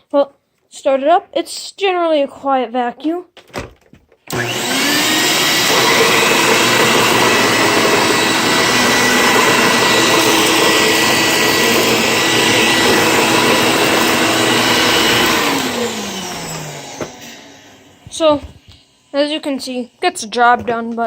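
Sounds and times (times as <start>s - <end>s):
vacuum cleaner motor whining: 4.3s - 20.7s.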